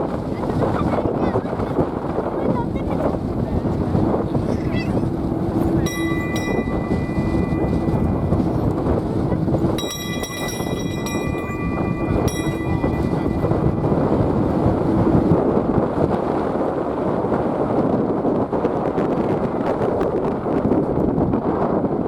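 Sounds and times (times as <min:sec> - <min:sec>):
wind buffeting microphone: 0:00.0 - 0:22.0
high engine whine: 0:02.0 - 0:17.3.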